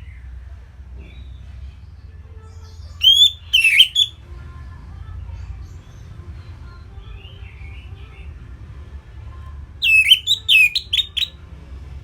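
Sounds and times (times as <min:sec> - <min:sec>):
thrush whistled song: 0:03.0 - 0:04.2, 0:09.8 - 0:11.4.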